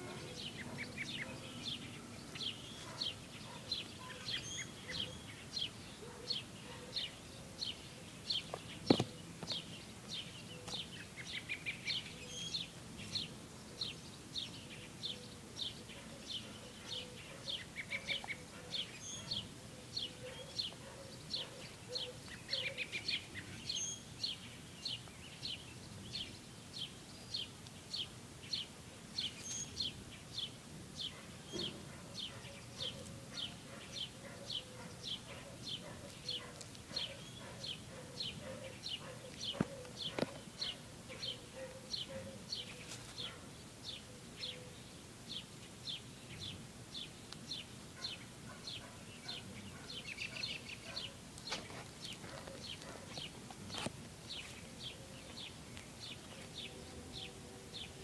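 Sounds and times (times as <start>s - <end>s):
bird chirping and trilling: 0.0s - 13.2s.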